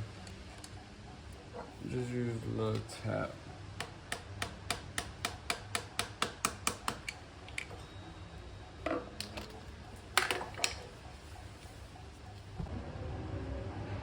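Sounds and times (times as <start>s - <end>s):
hammer tapping on metal: 3.8s - 7.2s.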